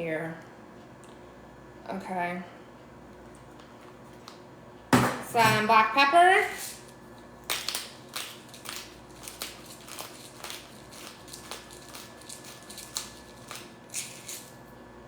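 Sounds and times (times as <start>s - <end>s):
pepper grinder crunching: 6.6s - 14.6s.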